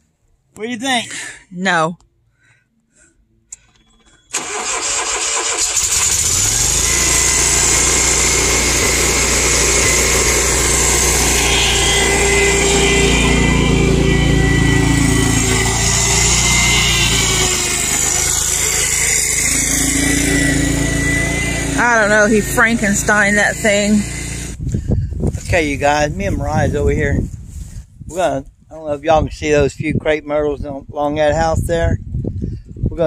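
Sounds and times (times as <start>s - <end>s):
lawn mower engine starting: 3.5s - 24.6s.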